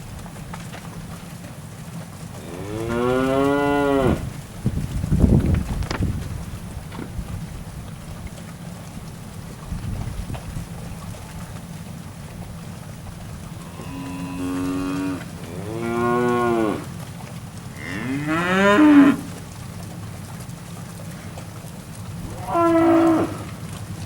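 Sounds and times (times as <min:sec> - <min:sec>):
cattle mooing: 0:02.4 - 0:04.3, 0:13.6 - 0:17.0, 0:17.7 - 0:19.4, 0:22.2 - 0:23.6.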